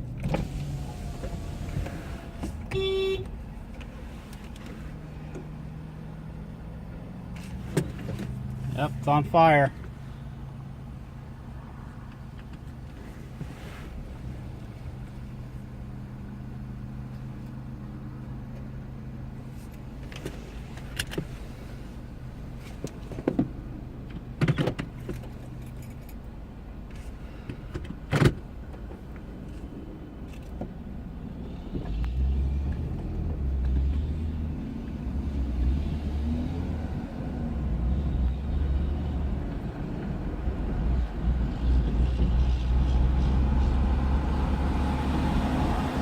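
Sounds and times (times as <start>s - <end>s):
vehicle engine idling: 0.0s - 34.4s.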